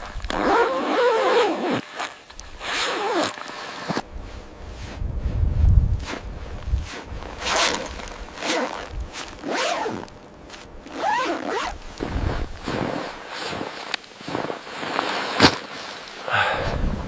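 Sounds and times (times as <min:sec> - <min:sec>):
zipper being pulled: 0:00.2 - 0:04.0, 0:06.8 - 0:15.9.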